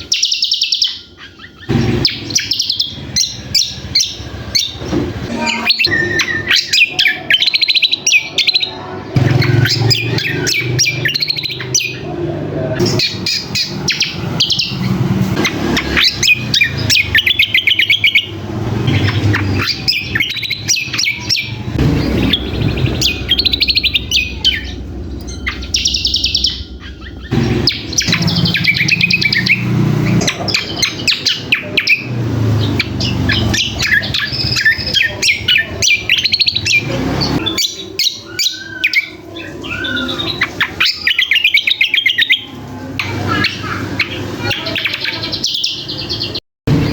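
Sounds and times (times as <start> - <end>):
songbird trilling: 0.0 - 46.4
low rumble: 18.2 - 30.3.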